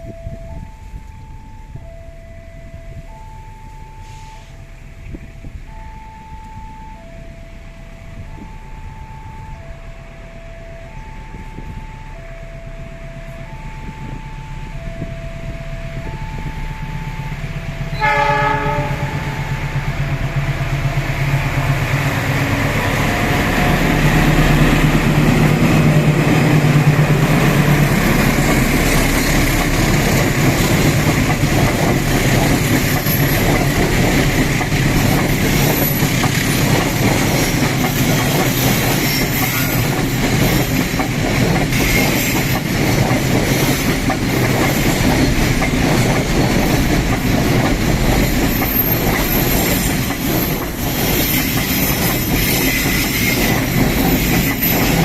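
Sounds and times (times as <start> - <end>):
level crossing alarm beeping: 0.0 - 4.7, 5.6 - 42.8
train engine running: 0.0 - 55.0
train horn blast: 4.0 - 4.7, 16.0 - 20.3
train wheels clattering on rails: 17.3 - 55.0.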